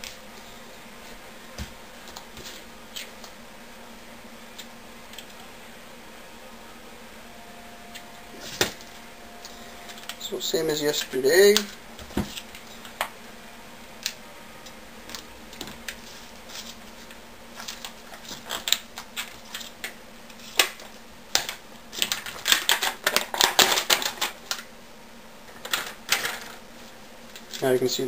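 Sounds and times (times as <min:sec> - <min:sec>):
plastic wrapping clicks and crackles: 0:17.6 - 0:24.7.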